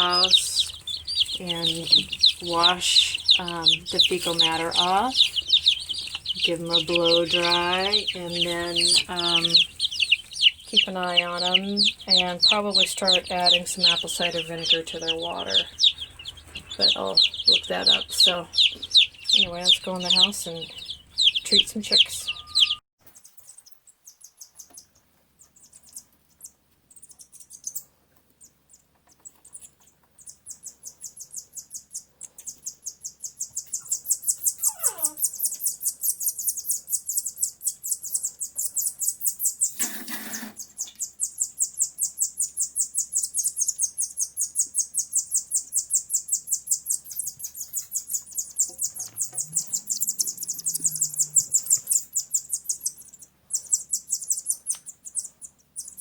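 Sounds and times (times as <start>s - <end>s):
rapid high-pitched chirping: 0.0s - 56.0s.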